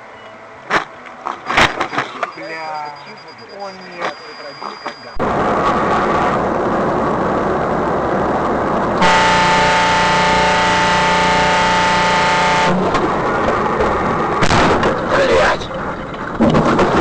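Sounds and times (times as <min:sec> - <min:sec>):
vehicle road and engine noise: 0:00.0 - 0:17.0
vehicle horn blaring: 0:09.0 - 0:13.0.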